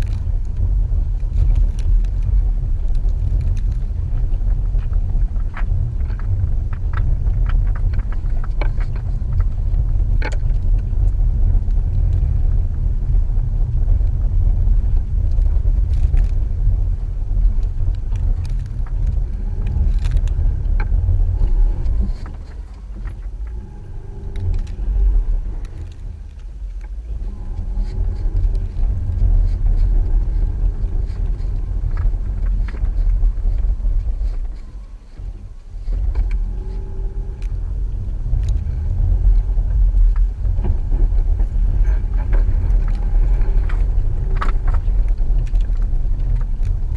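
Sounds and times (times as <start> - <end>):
car engine and tyres rumbling: 0.0 - 46.9.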